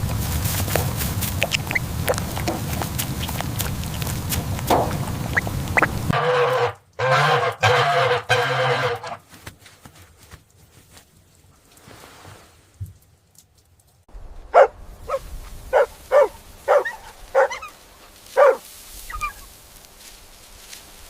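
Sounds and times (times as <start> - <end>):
rustling noise: 0.0 - 6.2, 8.7 - 21.0
animal calling: 0.6 - 9.2, 14.6 - 19.5.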